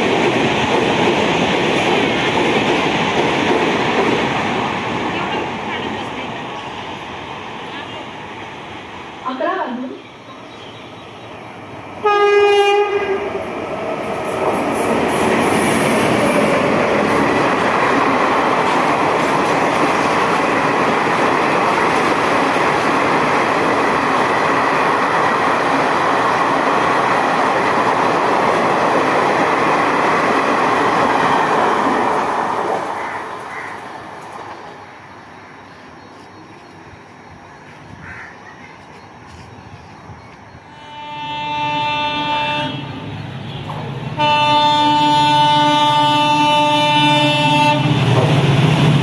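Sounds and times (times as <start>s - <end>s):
train wheels rushing on rails: 0.0s - 49.0s
locomotive horn blast: 12.0s - 13.4s, 40.7s - 48.0s.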